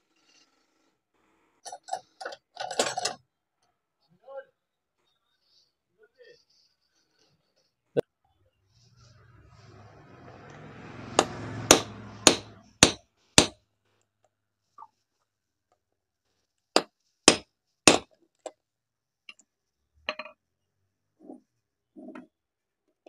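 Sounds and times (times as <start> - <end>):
hammer striking metal: 11.0 - 13.6, 17.3 - 18.0.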